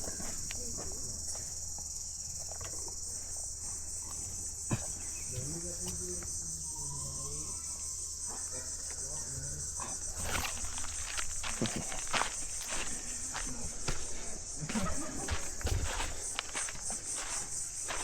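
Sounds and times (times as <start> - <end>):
high-pitched insect chorus: 0.0 - 18.0
footsteps on forest path: 10.1 - 18.0.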